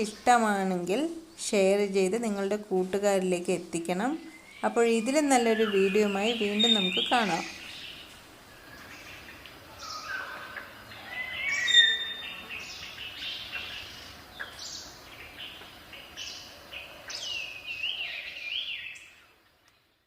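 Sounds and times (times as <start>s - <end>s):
faint outdoor background noise: 0.0s - 20.0s
birds chirping and singing: 4.1s - 19.8s.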